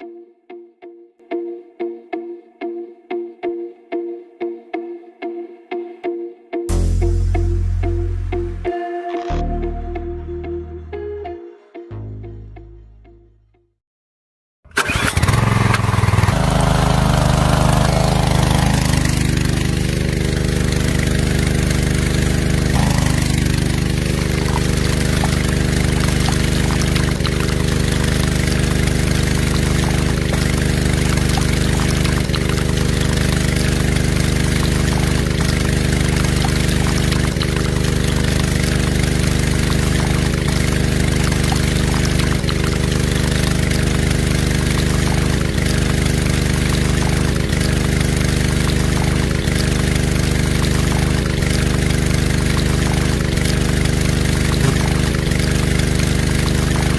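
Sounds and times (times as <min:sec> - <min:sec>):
toy diesel engine running: 0:14.7 - 0:56.9.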